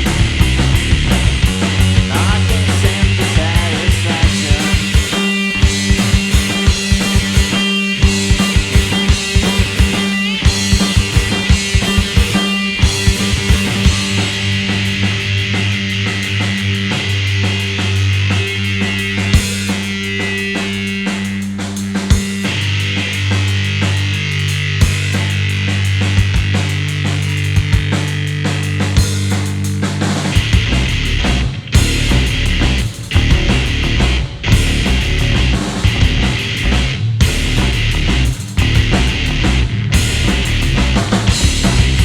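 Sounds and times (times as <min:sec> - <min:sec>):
drum kit hits: 0:00.0 - 0:17.4, 0:30.2 - 0:42.0
bass guitar: 0:00.0 - 0:42.0
electric guitar: 0:00.0 - 0:42.0.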